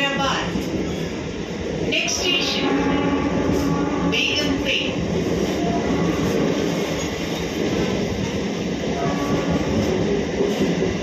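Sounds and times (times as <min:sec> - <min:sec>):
train carriage noise: 0:00.0 - 0:11.0
train wheels rumbling on rails: 0:00.0 - 0:11.0.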